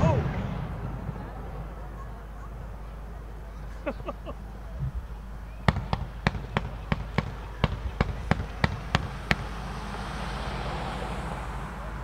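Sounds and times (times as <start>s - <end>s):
fireworks bangs: 0.0s - 3.1s, 4.8s - 10.2s.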